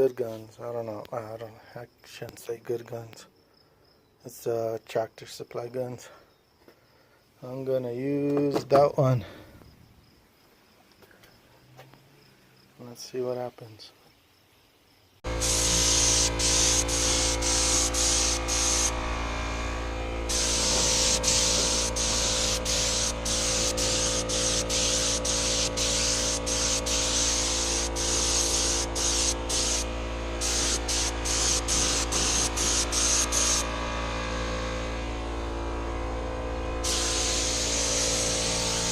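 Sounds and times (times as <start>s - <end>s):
spray gun hissing: 15.2s - 33.9s, 36.8s - 38.9s
machine hum: 15.2s - 38.9s.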